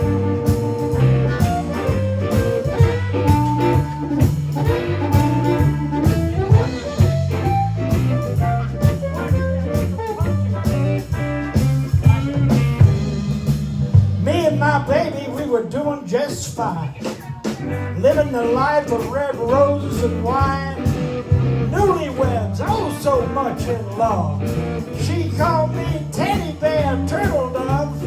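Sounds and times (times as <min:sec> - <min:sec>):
drum beat: 0:00.0 - 0:14.7
melodic lead line: 0:00.0 - 0:14.9
bass line: 0:00.0 - 0:28.0
blues band playing: 0:00.0 - 0:28.0.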